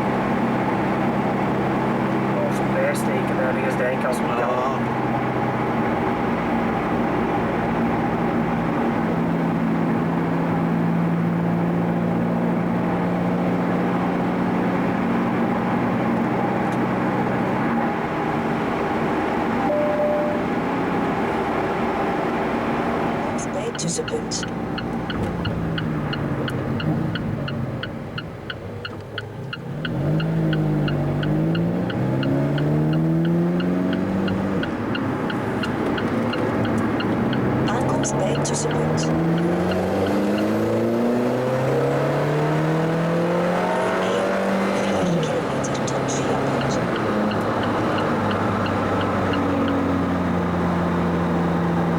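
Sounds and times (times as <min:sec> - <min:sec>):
car engine drone: 0:00.0 - 0:51.9
road noise in car cabin: 0:00.0 - 0:51.9
rapid electronic beeping: 0:23.4 - 0:29.0, 0:30.2 - 0:39.4.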